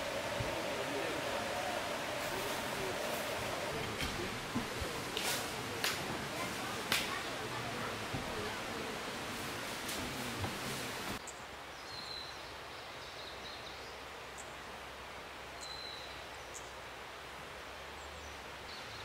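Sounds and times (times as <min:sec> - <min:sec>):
rush of noise: 0:00.0 - 0:11.2
faint outdoor hiss: 0:00.0 - 0:19.0.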